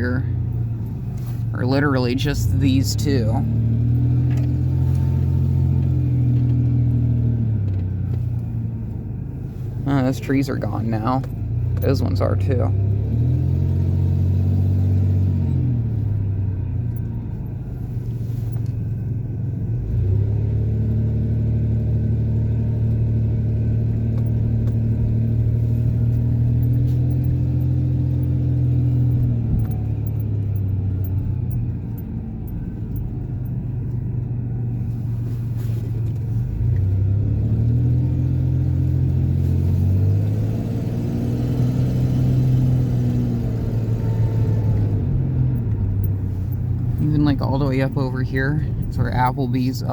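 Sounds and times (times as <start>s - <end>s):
truck engine driving: 0.0s - 49.9s.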